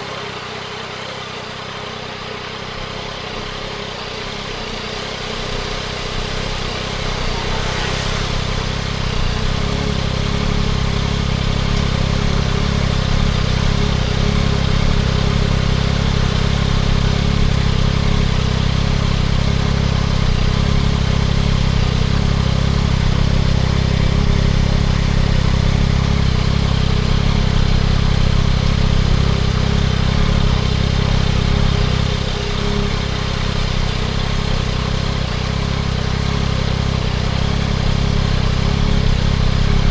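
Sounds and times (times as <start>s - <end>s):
motorcycle engine running: 0.0s - 39.9s
steady hiss: 4.5s - 13.8s.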